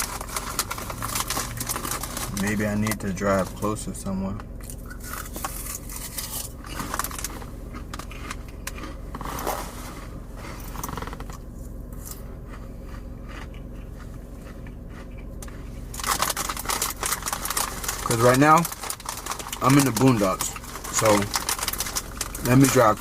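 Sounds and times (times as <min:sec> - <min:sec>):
car cabin hum: 0:00.0 - 0:23.0
handling clicks and scrapes: 0:04.6 - 0:11.4.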